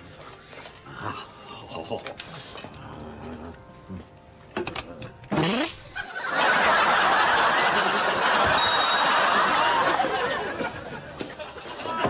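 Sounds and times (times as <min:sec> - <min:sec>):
studio audience laughing: 0:06.0 - 0:12.0.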